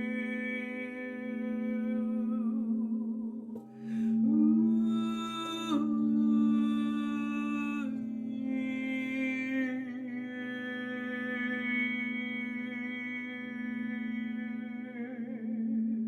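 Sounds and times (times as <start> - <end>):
person humming long notes: 0.0 - 16.0
low drone: 2.0 - 12.9.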